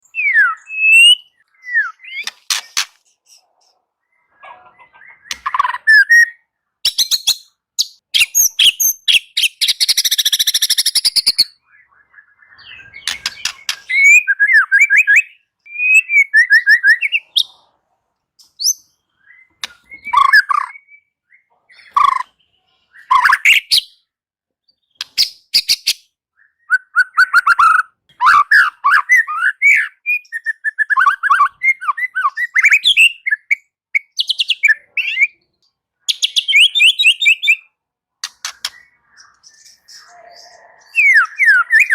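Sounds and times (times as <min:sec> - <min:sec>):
bird singing whistled phrases: 0:00.0 - 0:02.3, 0:04.9 - 0:17.4, 0:18.6 - 0:24.0, 0:25.6 - 0:35.4, 0:36.1 - 0:37.7, 0:38.6 - 0:41.9
bird's fast dry rattles: 0:02.1 - 0:03.2, 0:13.0 - 0:14.0.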